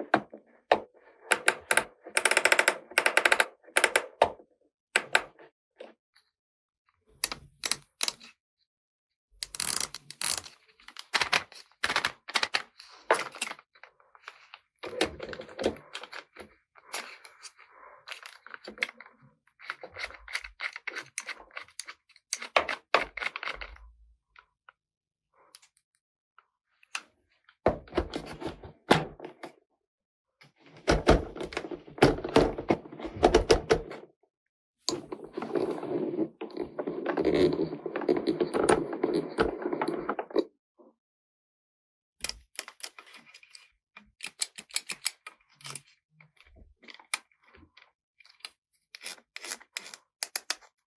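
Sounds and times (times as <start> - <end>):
plastic toy pieces clicking: 1.4 - 4.2, 9.4 - 12.6, 49.0 - 50.7.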